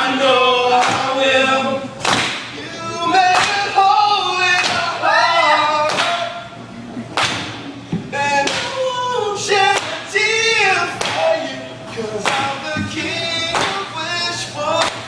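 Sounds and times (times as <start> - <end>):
voices singing or chanting: 0.0 - 6.6.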